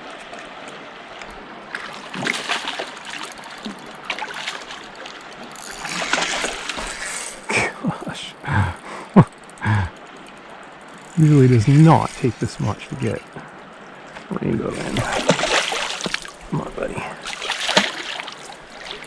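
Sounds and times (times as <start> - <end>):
river flowing: 0.0 - 19.0
fish splashing at water surface: 1.8 - 7.6, 14.8 - 16.4, 17.2 - 19.0.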